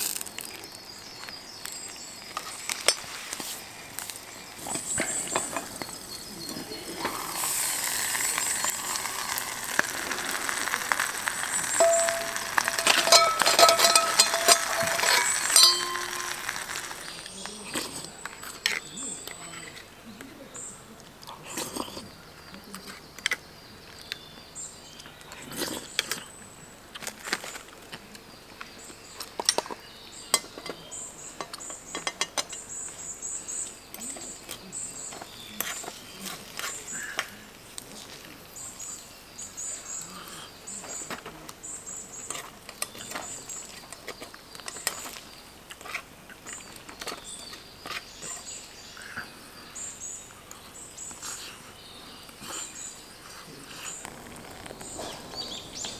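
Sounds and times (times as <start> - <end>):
bird chirping: 4.3 - 17.7, 46.5 - 55.9
sharp clicks and crackles: 7.0 - 17.9, 53.8 - 55.9.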